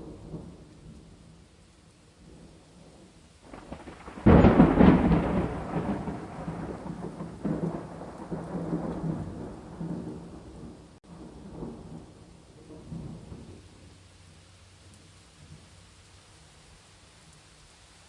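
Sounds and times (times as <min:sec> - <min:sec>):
thunder crack and rumble: 0:00.0 - 0:01.2, 0:02.2 - 0:13.8
steady rain: 0:00.0 - 0:18.0.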